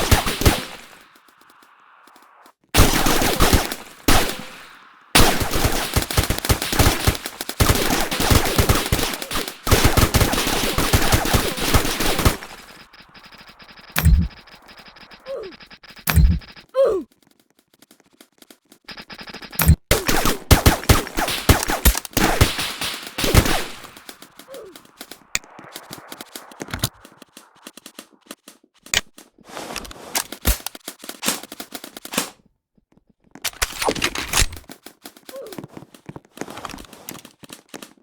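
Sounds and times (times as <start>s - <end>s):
airsoft guns firing: 0.0s - 1.7s, 2.8s - 16.6s, 18.9s - 27.8s.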